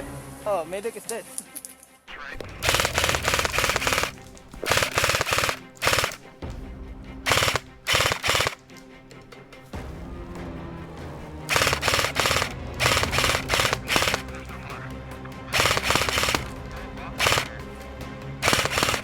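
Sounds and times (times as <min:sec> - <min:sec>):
background music: 0:00.0 - 0:19.0
airsoft gun full-auto bursts: 0:02.5 - 0:06.3, 0:07.3 - 0:08.6, 0:11.5 - 0:14.5, 0:15.5 - 0:17.7, 0:18.4 - 0:19.0.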